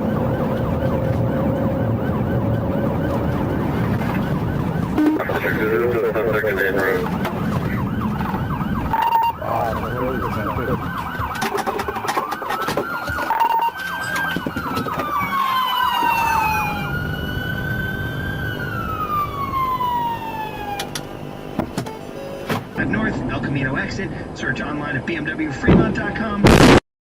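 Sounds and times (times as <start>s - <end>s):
emergency sirens wailing: 0.0s - 22.9s
short steady beeps: 5.0s - 6.3s.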